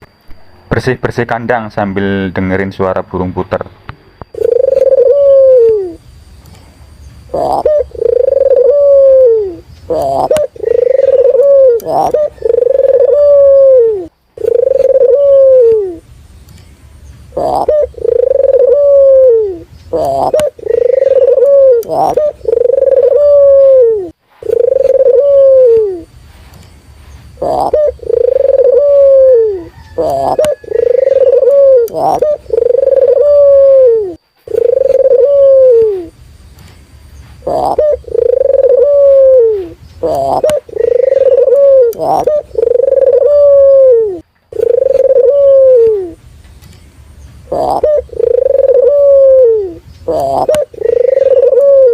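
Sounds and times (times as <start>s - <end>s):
dove cooing: 4.3s - 6.0s, 7.2s - 16.1s, 17.3s - 26.1s, 27.3s - 36.2s, 37.4s - 46.2s, 47.4s - 51.9s.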